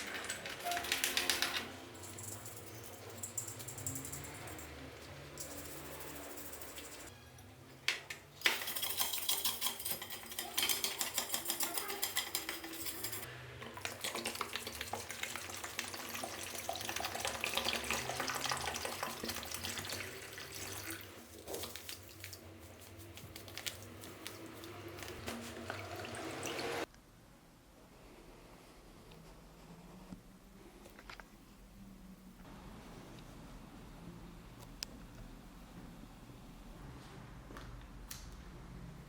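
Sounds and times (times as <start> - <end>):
parts clinking: 0.0 - 13.3.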